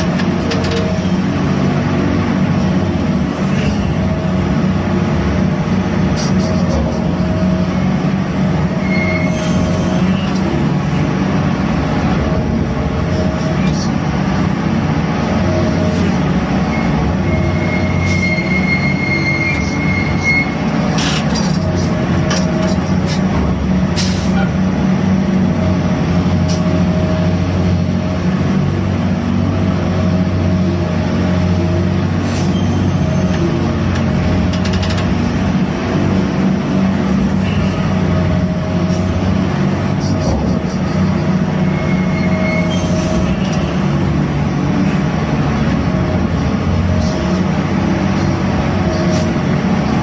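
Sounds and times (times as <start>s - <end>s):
crane machinery running: 0.0s - 50.0s
high squeal: 8.7s - 10.4s, 16.6s - 20.7s, 32.4s - 33.4s, 41.6s - 43.8s.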